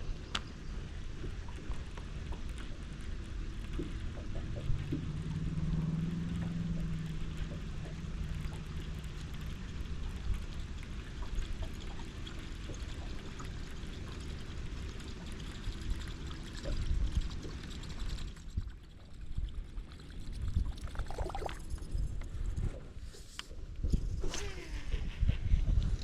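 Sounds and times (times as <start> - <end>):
light ticks: 0.2 - 0.6
wind on microphone: 15.5 - 26.0.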